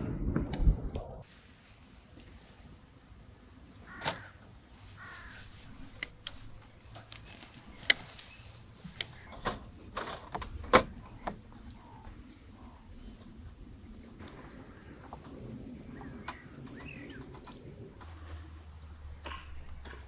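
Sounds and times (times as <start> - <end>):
short bird calls: 3.8 - 9.5
sharp knocks and clicks: 8.8 - 12.2.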